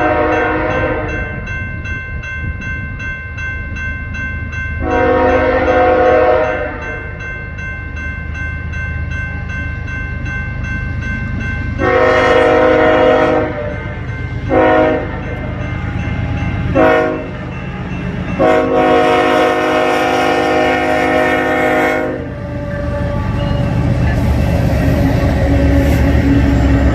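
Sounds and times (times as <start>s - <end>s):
locomotive air horn blasts: 0.0s - 1.4s, 4.8s - 6.9s, 11.8s - 15.4s, 16.7s - 17.4s, 18.4s - 23.5s
passing train rumble: 0.0s - 26.9s.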